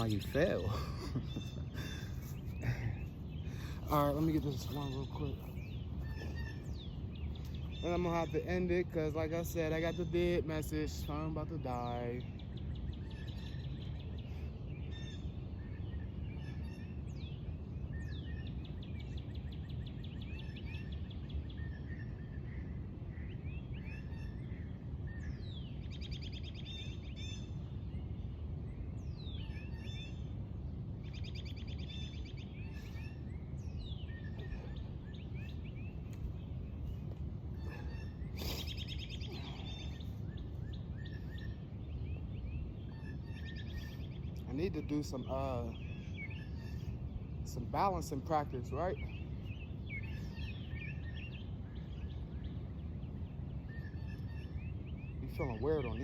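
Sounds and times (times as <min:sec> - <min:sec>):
birds singing and calling: 0:00.0 - 0:56.0
low background rumble: 0:00.0 - 0:56.0.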